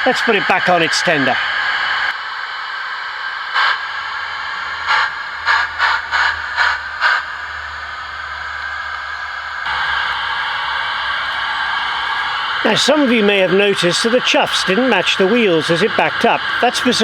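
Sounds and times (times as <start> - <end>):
steam hiss: 0.0 - 8.9, 9.7 - 17.0
model locomotive chuffs: 0.0 - 17.0.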